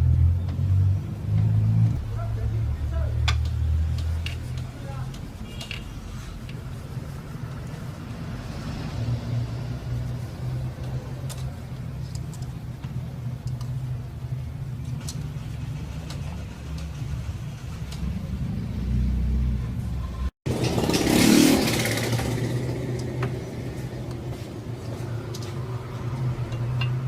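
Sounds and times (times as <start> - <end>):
steady low rumble: 1.6 - 8.5.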